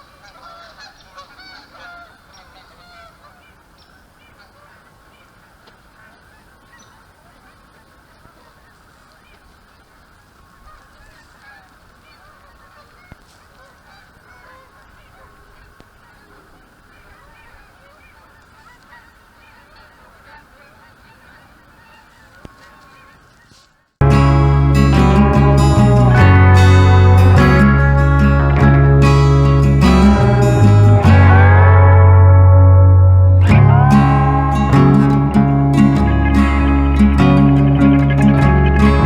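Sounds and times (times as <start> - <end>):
geese honking: 0.0 - 3.6, 10.5 - 39.0
loud acoustic guitar music: 24.0 - 39.0.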